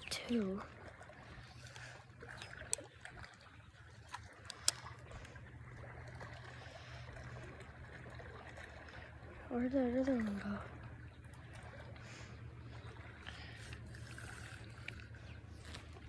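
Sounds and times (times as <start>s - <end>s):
steady low hum: 0.0s - 16.0s
water trickling and lapping: 0.0s - 16.0s.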